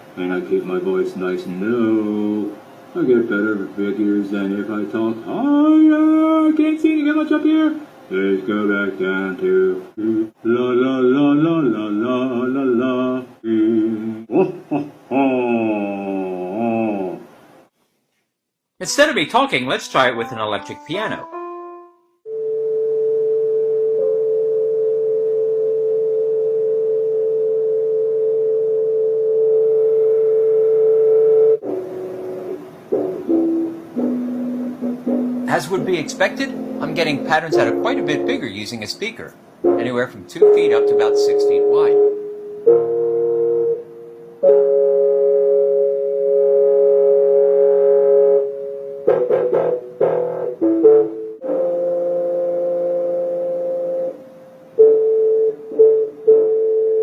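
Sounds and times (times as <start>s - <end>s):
electric piano notes: 19.7s - 57.0s.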